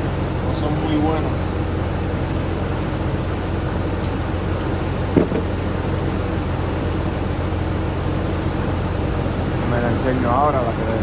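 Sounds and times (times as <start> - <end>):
car engine idling: 0.0 - 11.0
short knock: 5.2 - 5.6.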